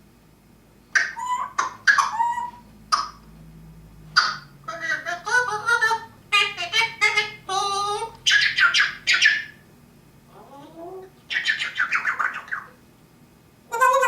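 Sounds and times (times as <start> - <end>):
parrot squawks: 1.0 - 3.2, 4.2 - 9.6, 11.3 - 12.8, 13.7 - 14.0
parrot whistling and chattering: 1.0 - 3.2, 4.2 - 9.6, 10.4 - 12.8, 13.7 - 14.0.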